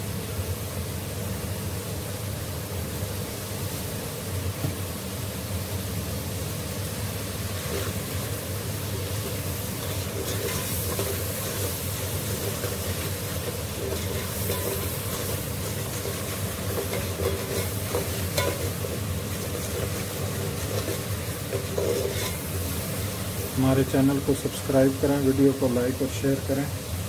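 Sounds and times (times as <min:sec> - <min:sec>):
masala sizzling in oil: 0:00.0 - 0:27.0
ladle scraping pot: 0:07.6 - 0:23.6.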